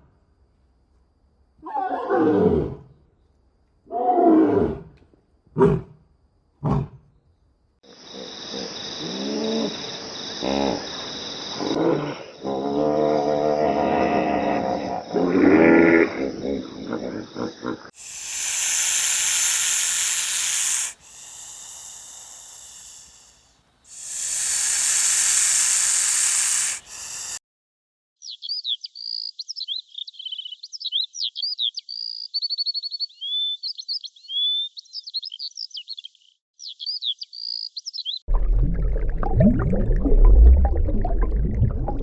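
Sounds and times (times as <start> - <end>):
animal hissing loudly: 18.0 - 27.4.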